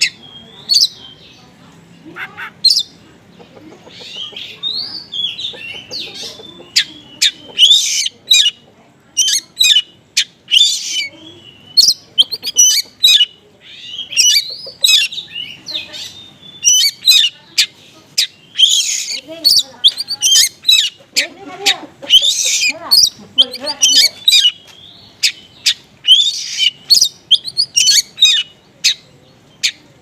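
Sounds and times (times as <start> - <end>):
bird singing sharp chirps: 22.1 - 29.0.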